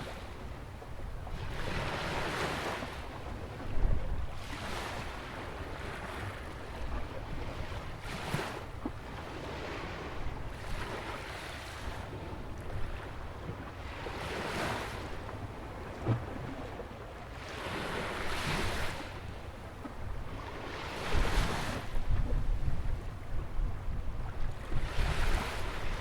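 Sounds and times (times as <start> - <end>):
wind rumbling on microphone: 21.0 - 26.0.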